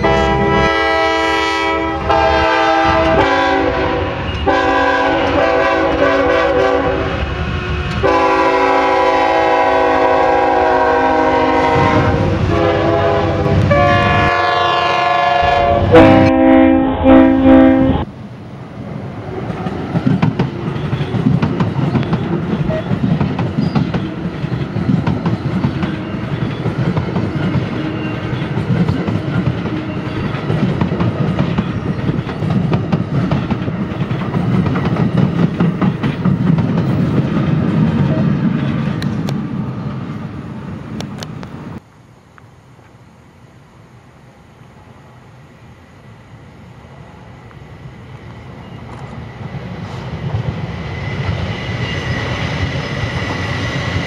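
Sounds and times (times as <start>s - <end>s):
train horn chord: 0.0s - 18.1s
train passing with clattering wheels: 0.0s - 43.0s, 44.3s - 54.0s.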